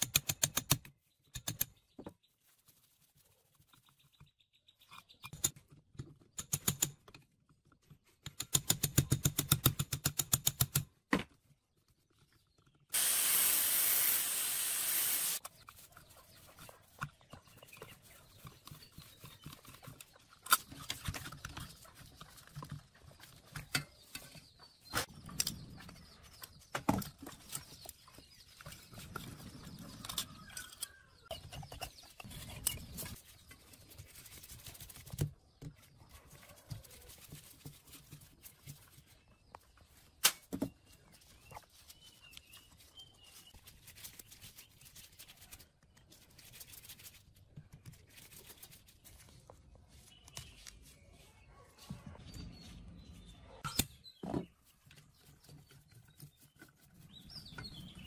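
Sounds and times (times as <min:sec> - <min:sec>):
pressurised spray hissing: 0:13.0 - 0:15.4.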